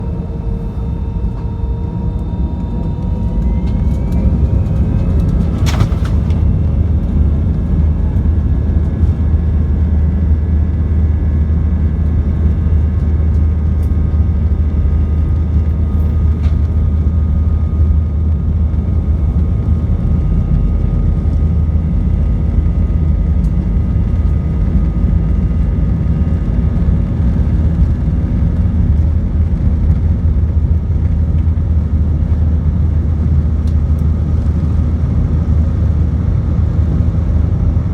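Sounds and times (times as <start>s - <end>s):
jet engines spooling up: 0.0s - 9.8s.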